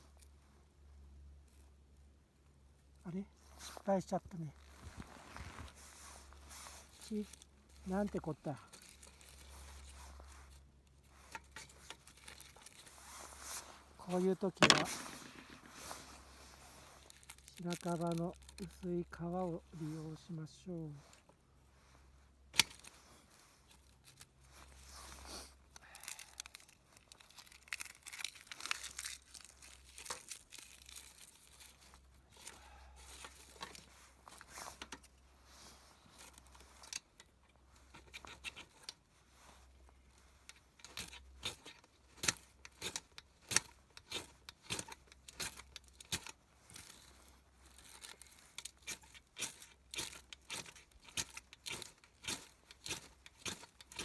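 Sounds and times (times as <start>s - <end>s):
bark tearing and rustling: 16.8s - 18.8s, 25.9s - 34.8s, 40.9s - 54.0s.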